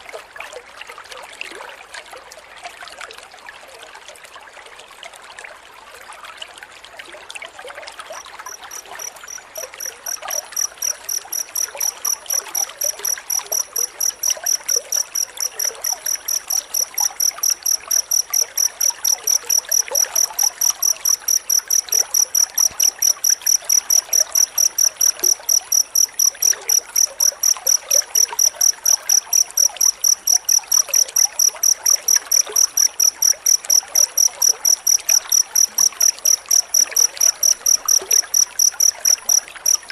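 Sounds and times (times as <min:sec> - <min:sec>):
cricket chirping: 0:08.1 - 0:39.9.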